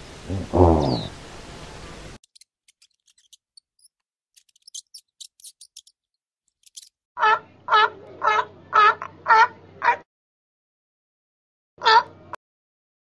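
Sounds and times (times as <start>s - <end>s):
steady outdoor hiss: 0.0s - 2.2s
rat squeaking and clicking: 2.2s - 7.0s.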